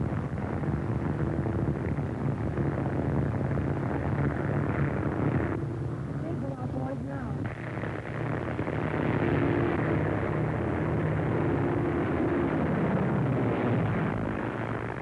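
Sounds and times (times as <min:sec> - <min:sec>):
propeller aircraft engines droning: 0:05.0 - 0:08.8.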